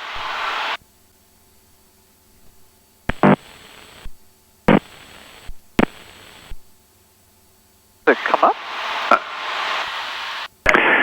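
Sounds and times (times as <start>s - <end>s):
thin high whine: 0.0s - 0.8s, 2.5s - 6.7s, 8.0s - 11.0s
radio static hiss with clicks: 0.0s - 6.8s, 8.0s - 11.0s
faint intercom hum: 8.0s - 11.0s.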